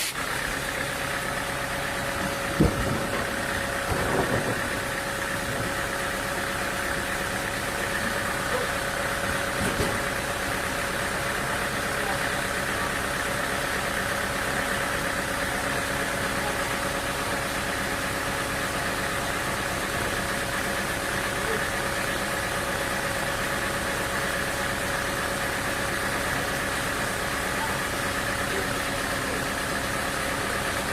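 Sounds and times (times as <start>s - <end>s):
sawmill machinery humming: 0.0s - 30.9s.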